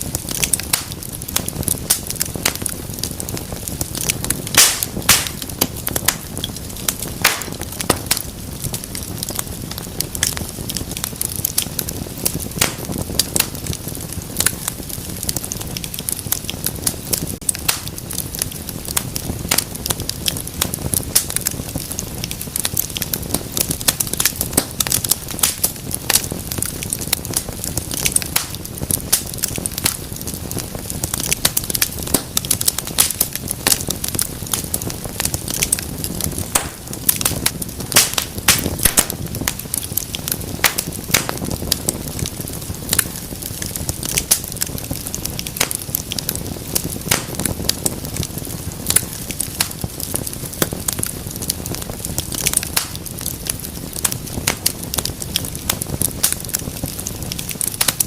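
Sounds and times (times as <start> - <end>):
low rush of flame: 0.0 - 58.0
sharp snaps and pops: 0.0 - 58.0
wood fire crackling: 0.0 - 58.0.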